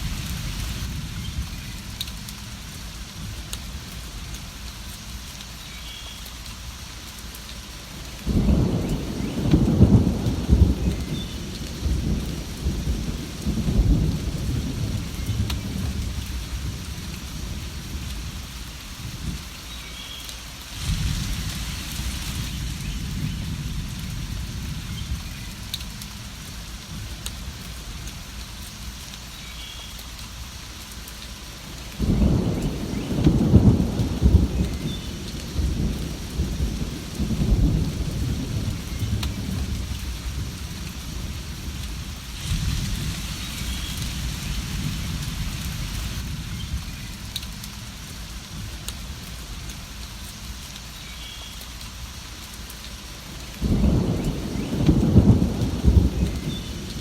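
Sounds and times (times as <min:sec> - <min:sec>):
steady rain: 0:00.0 - 0:57.0
rolling thunder: 0:08.2 - 0:18.4, 0:20.8 - 0:25.7, 0:32.0 - 0:47.8, 0:53.5 - 0:57.0.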